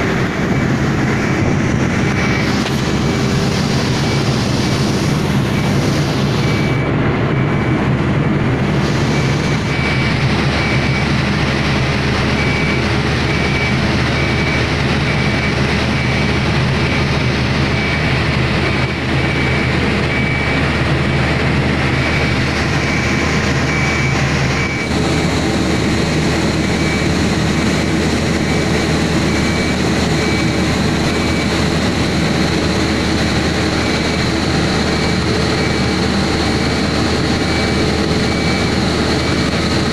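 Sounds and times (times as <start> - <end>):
high warning beep: 0.0 - 7.9, 8.7 - 39.9
diesel engine running under load: 0.0 - 39.9
high whine: 0.0 - 39.9.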